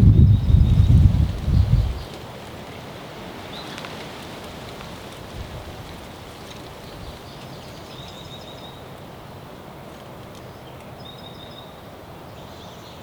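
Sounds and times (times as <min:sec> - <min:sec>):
wind and rustling: 0:00.0 - 0:12.9.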